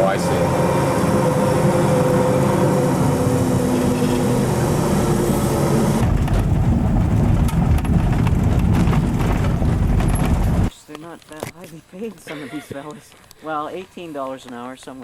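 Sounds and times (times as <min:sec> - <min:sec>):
heavy diesel engine running: 0:00.0 - 0:10.7.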